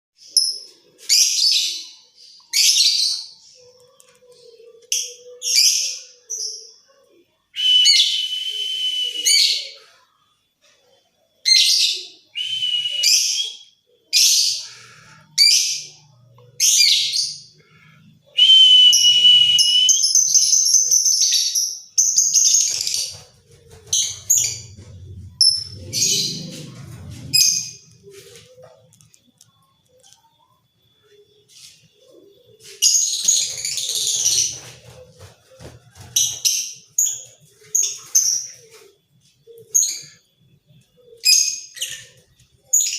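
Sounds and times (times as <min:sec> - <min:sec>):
low rumble: 0:24.4 - 0:28.0.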